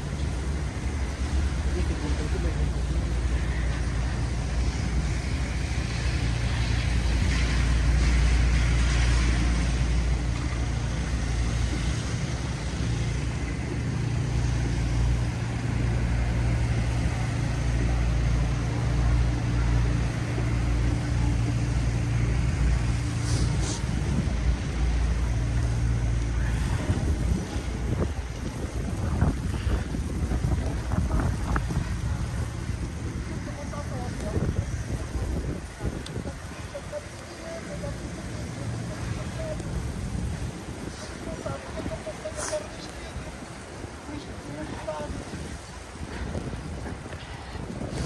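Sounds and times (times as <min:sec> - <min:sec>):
low traffic rumble: 0:00.0 - 0:48.0
vehicles passing: 0:00.0 - 0:48.0
brief hiss: 0:23.1 - 0:24.2.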